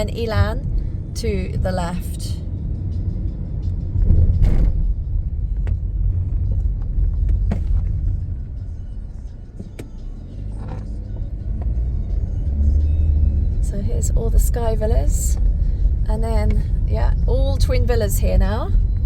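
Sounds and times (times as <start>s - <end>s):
car cabin road and engine rumble: 0.0s - 19.0s.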